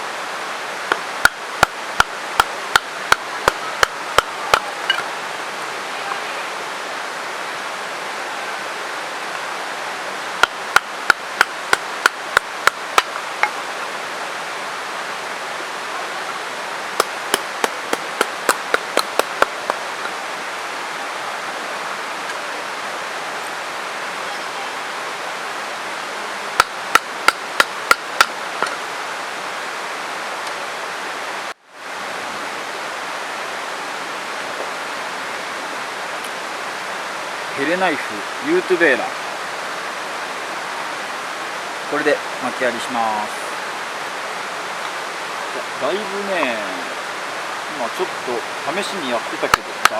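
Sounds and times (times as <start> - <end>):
mountain stream rushing: 0.0 - 49.9
knife batoned through wood knocks: 17.0 - 19.8.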